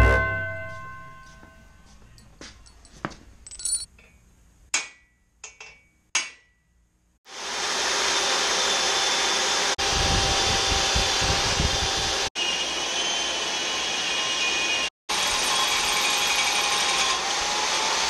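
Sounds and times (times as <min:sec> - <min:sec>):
metallic clinks: 0:00.0 - 0:04.2
electric drill boring into tube: 0:07.3 - 0:18.0.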